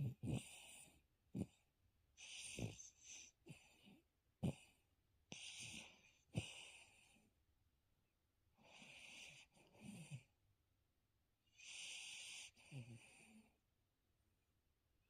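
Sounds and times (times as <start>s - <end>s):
dog snoring: 0.0s - 1.6s, 2.2s - 7.2s, 8.6s - 10.3s, 11.5s - 13.6s.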